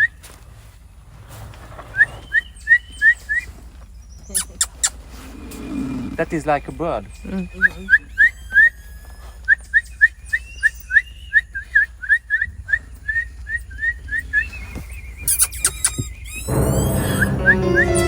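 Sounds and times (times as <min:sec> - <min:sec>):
short whistled chirps: 0:04.2 - 0:05.0, 0:07.2 - 0:18.0.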